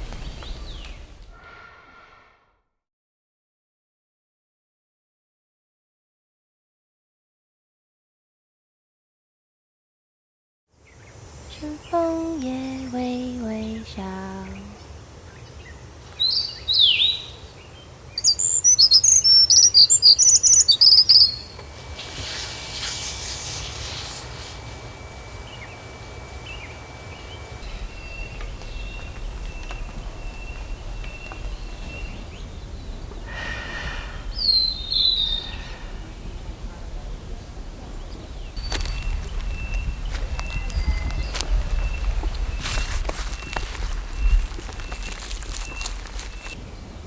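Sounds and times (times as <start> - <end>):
softly repeated bird call: 0.0 - 1.3, 13.5 - 36.7, 38.0 - 46.6
downward-sweeping bird calls: 0.0 - 1.6, 10.9 - 46.9
rapid high bird chirps: 16.2 - 36.6, 38.1 - 46.6.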